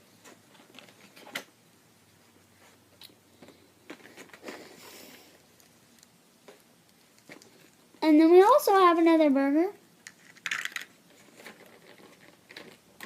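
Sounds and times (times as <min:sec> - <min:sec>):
plastic toy pieces clicking: 0:10.0 - 0:12.8.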